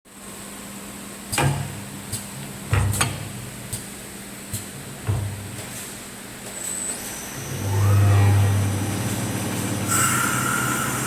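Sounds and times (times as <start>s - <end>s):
knocks and thuds: 4.6s - 5.7s
wood lathe hum and whine: 7.4s - 11.0s.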